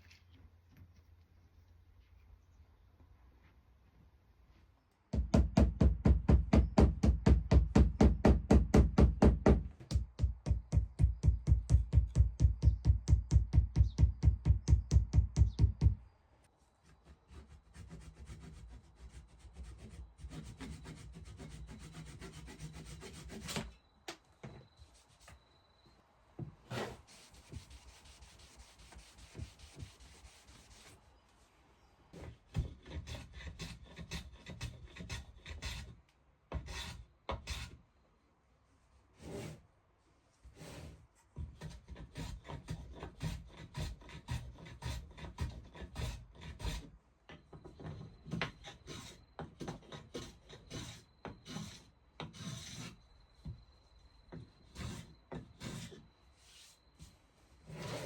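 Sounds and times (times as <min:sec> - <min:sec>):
hand sanding wood: 0:17.0 - 0:23.6, 0:26.7 - 0:31.0.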